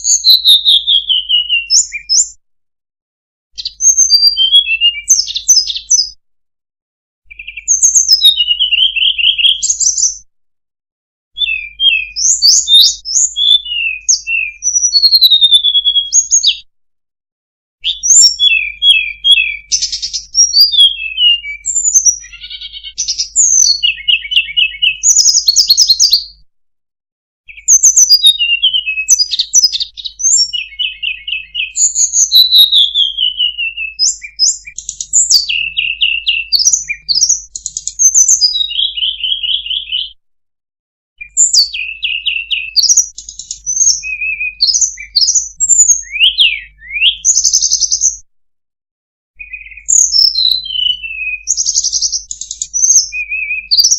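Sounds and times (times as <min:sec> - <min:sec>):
whistled birdsong with trills: 0:00.0 - 0:02.4, 0:03.6 - 0:06.2, 0:07.3 - 0:10.3, 0:11.3 - 0:16.7, 0:17.8 - 0:26.4, 0:27.5 - 0:40.2, 0:41.2 - 0:48.3, 0:49.4 - 0:53.9.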